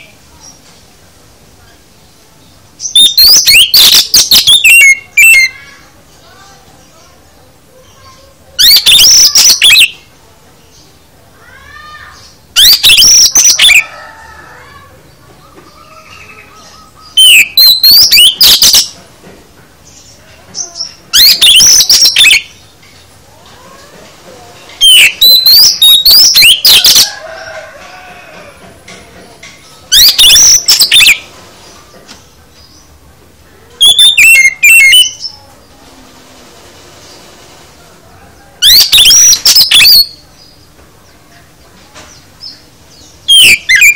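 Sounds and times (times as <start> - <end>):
bird singing varied whistles: 2.8 - 5.8, 8.6 - 10.1, 12.6 - 13.8, 16.4 - 19.0, 21.1 - 22.6, 24.8 - 27.1, 29.8 - 31.3, 33.8 - 35.3, 38.6 - 40.2, 42.5 - 43.9.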